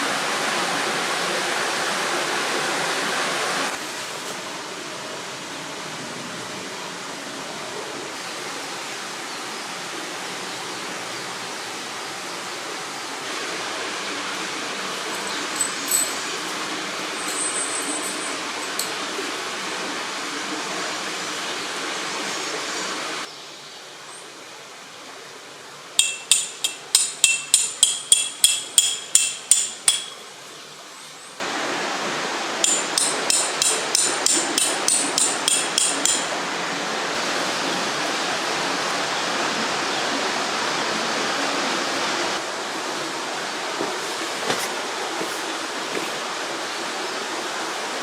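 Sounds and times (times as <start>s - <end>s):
river rushing: 0.0s - 23.3s, 31.4s - 48.0s
hammer striking metal: 26.0s - 30.2s, 32.6s - 36.3s.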